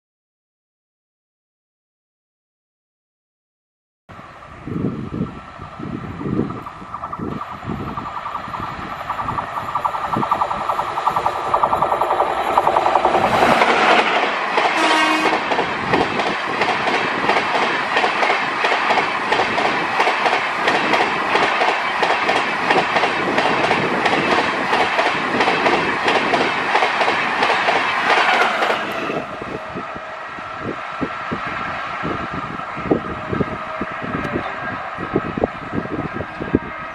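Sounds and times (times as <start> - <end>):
train wheels clattering over rail joints: 6.9 - 29.2
train horn blast: 14.8 - 15.5.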